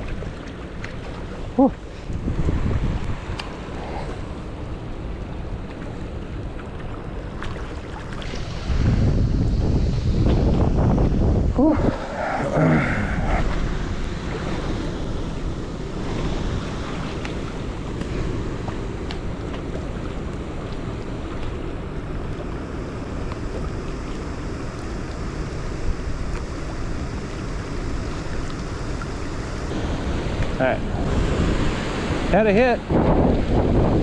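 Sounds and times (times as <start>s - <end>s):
waves lapping against rocks: 0.0s - 34.0s
wind buffeting microphone: 1.2s - 5.6s, 8.2s - 20.1s, 25.8s - 34.0s.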